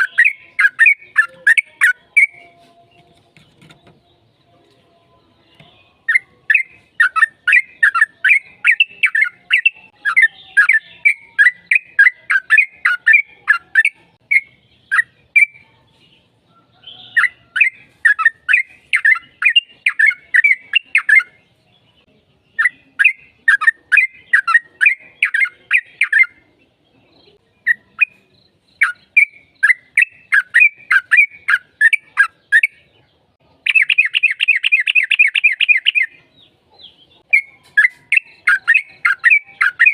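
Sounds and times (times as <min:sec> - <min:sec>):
bulbul singing rapid chattering notes: 0:00.0 - 0:02.5, 0:05.5 - 0:15.6, 0:17.1 - 0:21.4, 0:22.5 - 0:26.4, 0:27.6 - 0:32.9, 0:33.6 - 0:36.2, 0:37.2 - 0:39.9.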